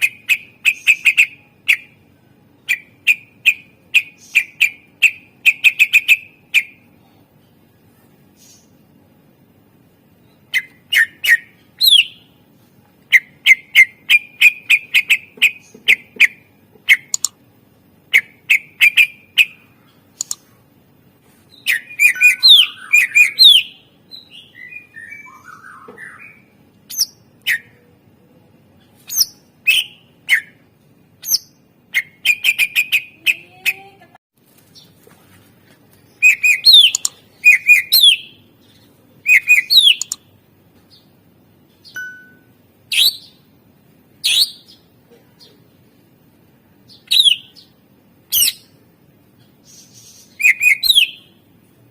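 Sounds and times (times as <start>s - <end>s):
bird singing sharp chirps: 21.6s - 26.4s, 36.2s - 38.4s, 39.3s - 40.2s.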